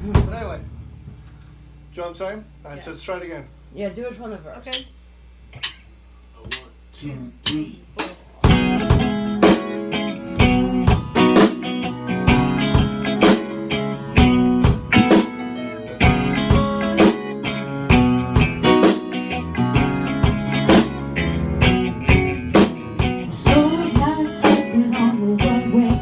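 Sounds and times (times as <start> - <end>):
steady beat: 0.0 - 2.0, 7.4 - 26.0
guitar chords: 8.4 - 26.0
live band playing instrumental: 8.4 - 26.0.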